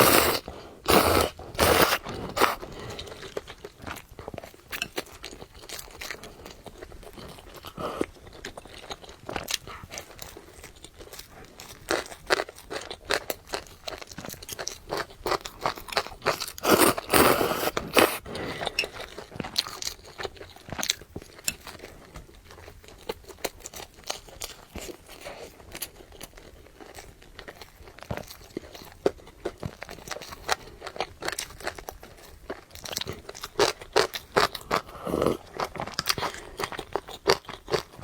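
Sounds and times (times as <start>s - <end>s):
crunchy chewing: 0.0s - 38.0s.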